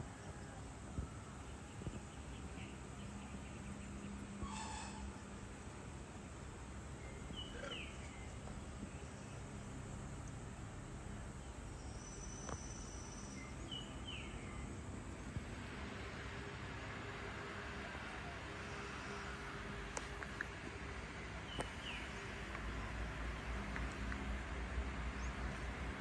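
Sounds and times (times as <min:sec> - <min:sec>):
steady background hiss: 0:00.0 - 0:26.0
bird calling: 0:07.3 - 0:08.4.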